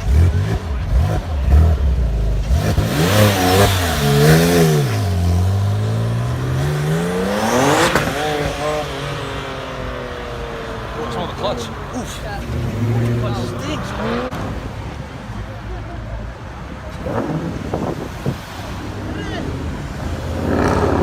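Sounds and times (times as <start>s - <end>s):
sports car engine revving: 0.0s - 14.7s, 19.8s - 21.0s
car accelerating past: 2.4s - 14.8s.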